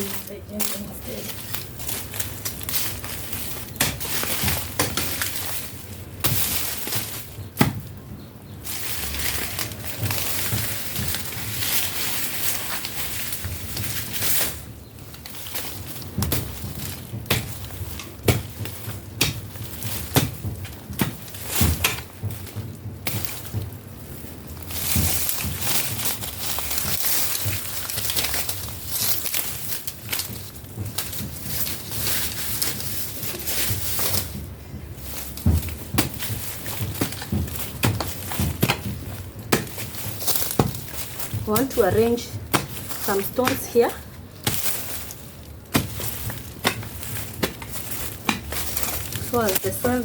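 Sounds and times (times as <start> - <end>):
hoe chopping thuds: 35.2 - 50.0.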